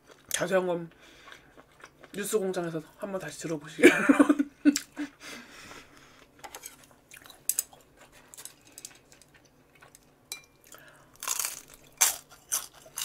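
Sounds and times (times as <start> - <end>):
crunchy chewing of spring roll: 1.1 - 2.4, 6.0 - 10.0, 10.6 - 13.0.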